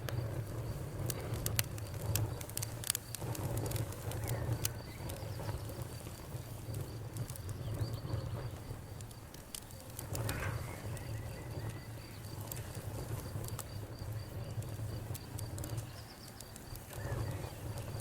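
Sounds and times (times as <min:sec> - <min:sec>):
low rumble of flames: 0:00.0 - 0:18.0
wood fire crackling and popping: 0:00.0 - 0:18.0.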